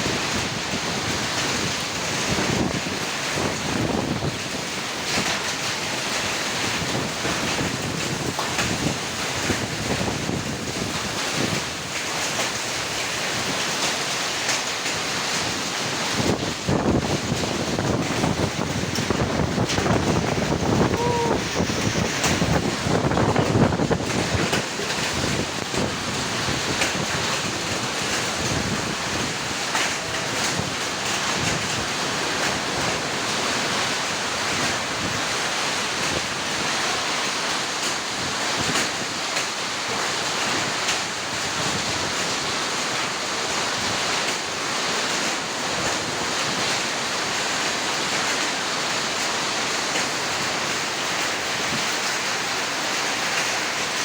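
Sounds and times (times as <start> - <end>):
wind buffeting microphone: 0.0 - 12.6, 15.2 - 36.8
heavy rain hissing: 0.0 - 54.0
hailstones ticking: 0.1 - 35.2.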